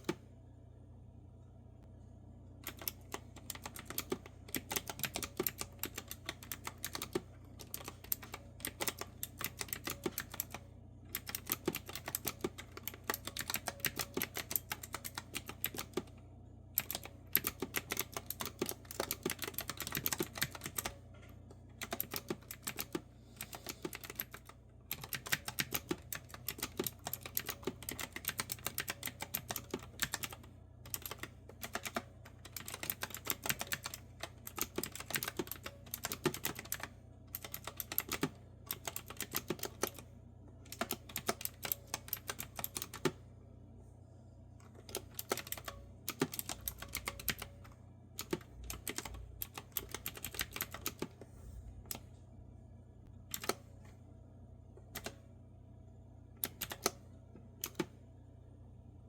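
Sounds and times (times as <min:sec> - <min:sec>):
keyboard keystroke clicks: 0:57.6 - 0:57.9.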